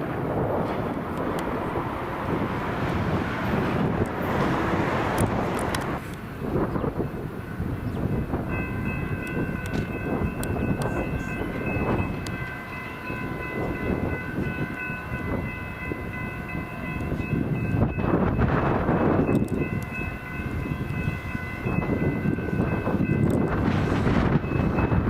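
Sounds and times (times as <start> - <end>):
train wheels clattering on rails: 0.0 - 25.0
high ringing tones: 7.0 - 23.6.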